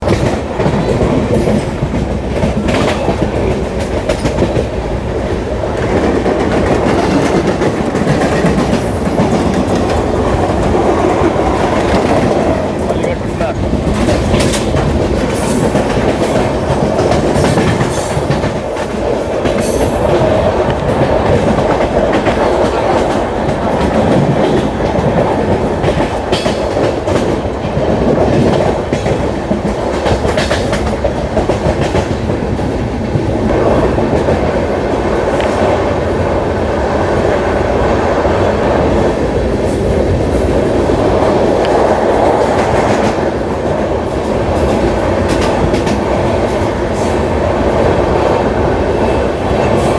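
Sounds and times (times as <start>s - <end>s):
train rumbling on track: 0.0s - 49.9s
wheels clacking over rail joints: 0.0s - 49.9s.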